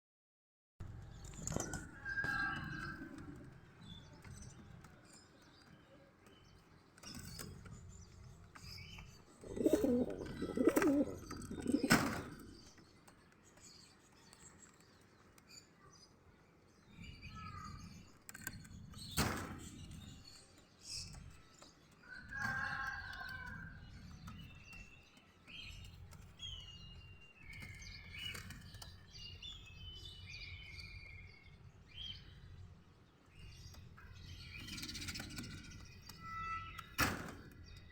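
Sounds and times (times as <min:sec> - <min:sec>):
pigeons cooing: 0:09.4 - 0:12.6.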